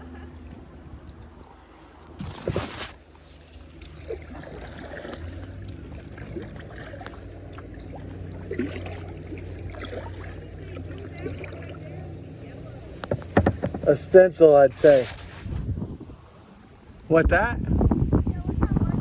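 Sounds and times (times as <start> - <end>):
paddle splashing water: 0.0 - 17.0
steady low hum: 0.0 - 19.0
water dripping off paddle: 3.2 - 13.8.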